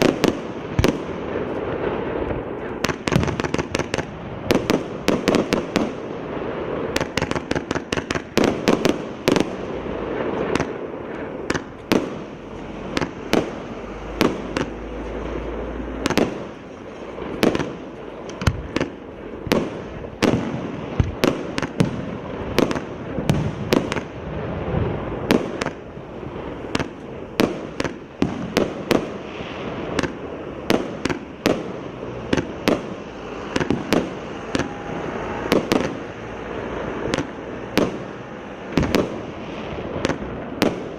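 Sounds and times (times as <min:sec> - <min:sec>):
fireworks bangs: 0:00.0 - 0:40.9.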